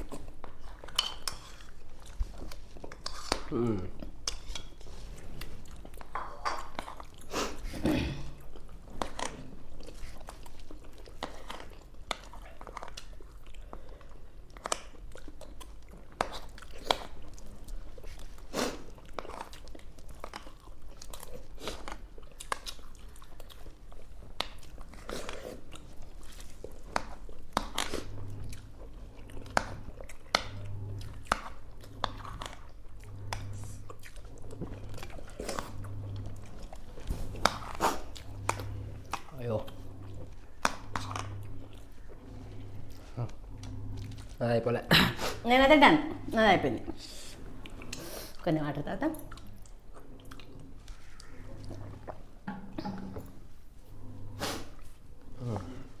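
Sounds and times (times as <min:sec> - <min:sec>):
people chewing food: 0:00.0 - 0:56.0
low hum: 0:27.8 - 0:44.4, 0:48.9 - 0:56.0.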